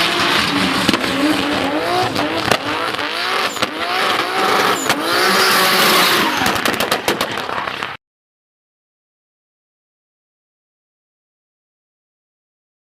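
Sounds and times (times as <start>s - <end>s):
car engine revving: 0.0s - 7.5s
sharp exhaust cracks: 0.0s - 7.8s
tyre squeal: 1.0s - 6.5s.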